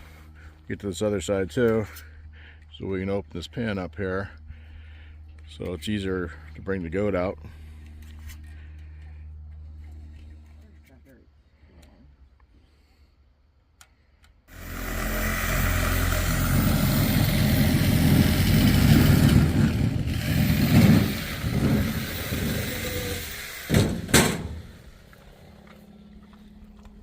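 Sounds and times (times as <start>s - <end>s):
engine running loudly: 14.5s - 27.0s.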